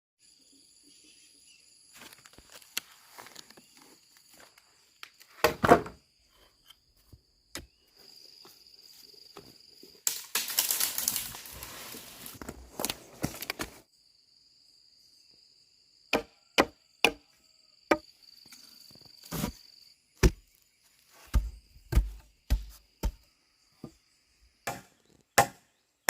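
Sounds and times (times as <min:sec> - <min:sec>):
crunching and rustling: 0:01.9 - 0:04.6, 0:10.0 - 0:13.8, 0:19.0 - 0:19.6.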